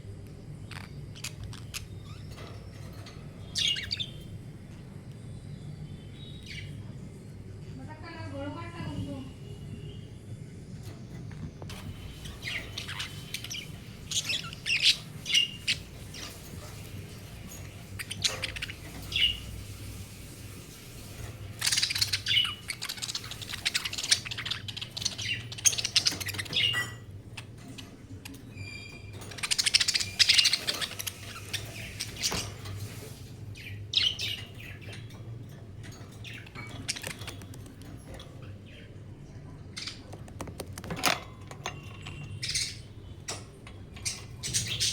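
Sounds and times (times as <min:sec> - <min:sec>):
budgerigars chirping: 0:03.4 - 0:04.3, 0:11.7 - 0:19.8, 0:21.6 - 0:35.1, 0:42.0 - 0:44.9.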